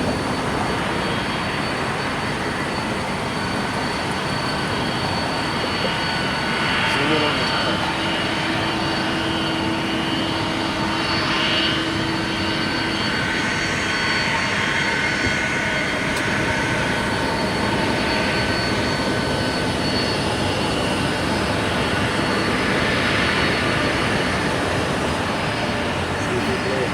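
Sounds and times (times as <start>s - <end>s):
jet engines rushing: 0.0s - 26.9s.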